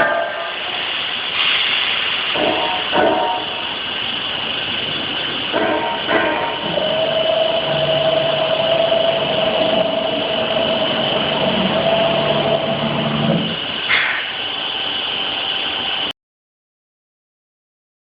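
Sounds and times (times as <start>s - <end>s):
machine high whine: 0.0s - 16.1s
short hiss: 1.3s - 2.4s
low humming drive tone: 4.8s - 16.1s.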